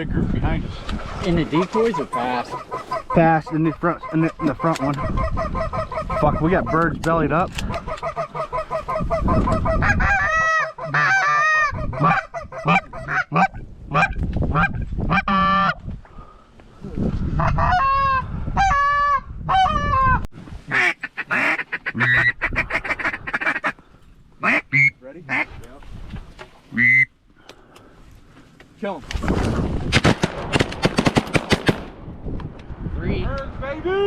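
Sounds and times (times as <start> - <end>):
geese honking and clucking: 1.5 - 15.8, 17.3 - 25.6, 26.7 - 27.1.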